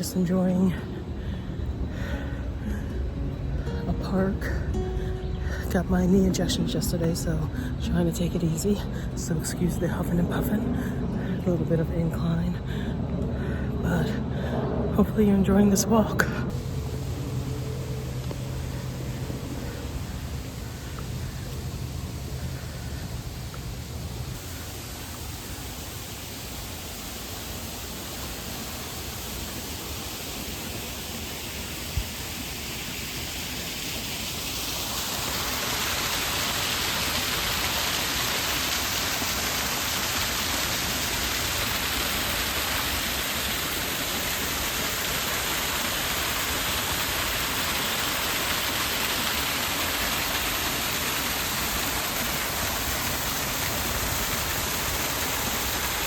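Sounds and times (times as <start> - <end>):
small waterfall rushing: 0.0 - 4.0, 4.7 - 5.5, 16.5 - 56.0.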